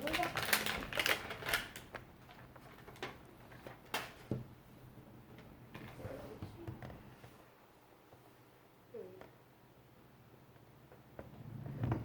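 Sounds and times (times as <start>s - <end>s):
plastic packaging crinkling: 0.0s - 4.2s
plastic packaging snapping: 0.0s - 4.2s.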